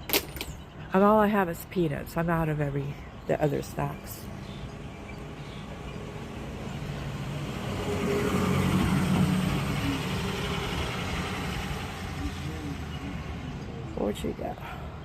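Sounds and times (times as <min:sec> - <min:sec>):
motor vehicle passing by: 0:04.4 - 0:15.0.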